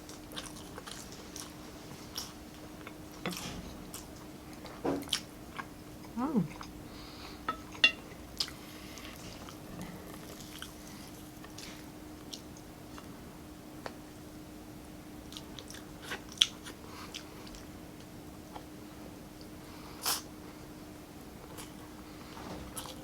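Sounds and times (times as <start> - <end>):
person chewing food: 0.0 - 13.1, 15.3 - 17.7
steady low hum: 0.0 - 23.0.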